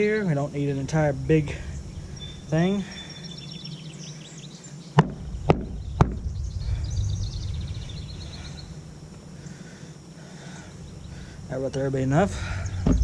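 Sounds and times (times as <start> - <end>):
birds chirping faintly: 0.0 - 13.0
sharp knocks: 5.0 - 6.3
low rumbling handling noise: 5.0 - 9.4, 10.8 - 13.0.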